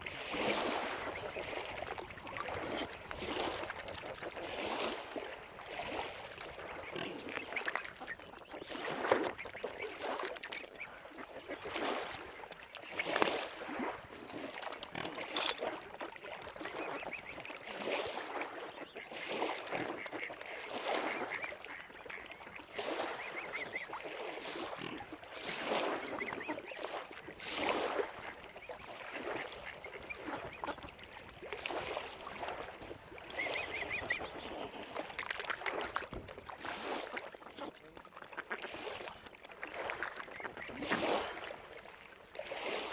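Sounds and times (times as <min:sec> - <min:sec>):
waterfowl calling: 0:16.6 - 0:36.0, 0:36.6 - 0:41.5.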